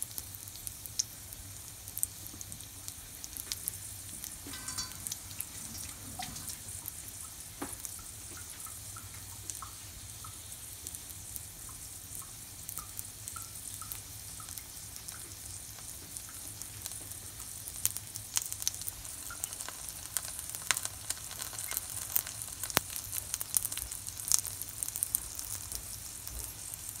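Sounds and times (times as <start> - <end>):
oil crackling and popping: 0.0 - 27.0
pancake sizzling in oil: 0.0 - 27.0.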